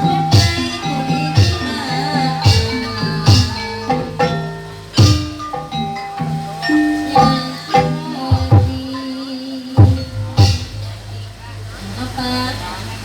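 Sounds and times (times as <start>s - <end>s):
sharp drum strokes: 0.0s - 9.1s, 9.8s - 11.1s
metallophones ringing: 0.0s - 12.5s.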